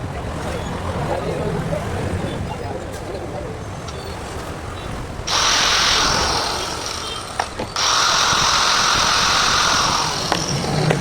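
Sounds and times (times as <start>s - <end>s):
angle grinder whining: 5.3s - 11.0s.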